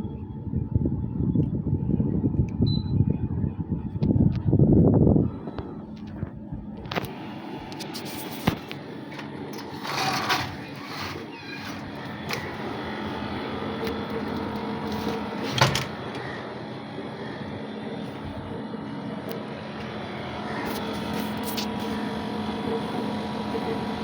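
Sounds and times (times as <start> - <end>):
air conditioner humming: 0.0 - 24.0.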